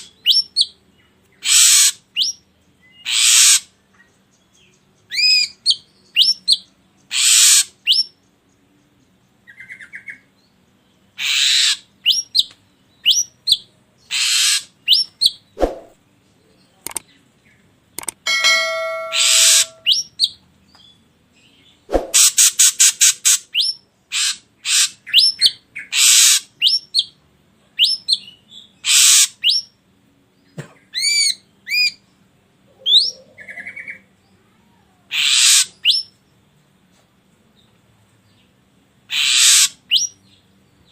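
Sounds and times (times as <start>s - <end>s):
bird harsh rasping calls: 1.4s - 2.4s, 3.0s - 3.7s, 7.1s - 8.0s, 11.2s - 12.2s, 14.1s - 15.9s, 18.0s - 20.4s, 21.9s - 26.6s, 28.8s - 29.4s, 35.1s - 36.0s, 39.1s - 40.1s
bird whistled glides: 21.9s - 22.3s.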